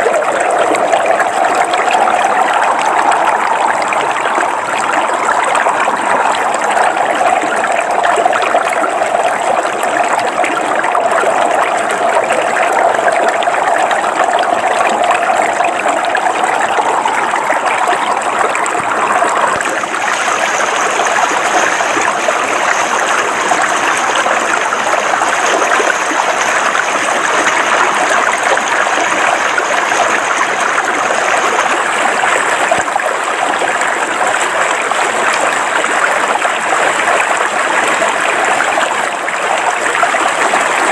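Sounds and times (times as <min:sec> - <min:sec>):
river water flowing over rocks: 0:00.0 - 0:40.9.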